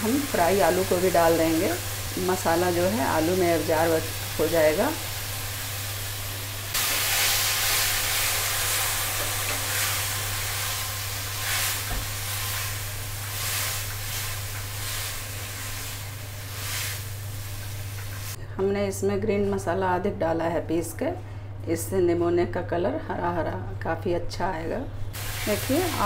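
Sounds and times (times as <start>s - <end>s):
food sizzling in oil: 0.0s - 18.4s, 25.2s - 26.0s.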